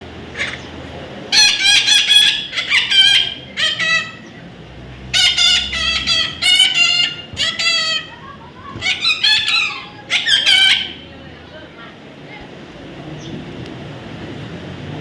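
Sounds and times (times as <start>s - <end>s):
parrot squawking: 0.3s - 0.7s, 1.3s - 4.3s, 5.1s - 11.1s.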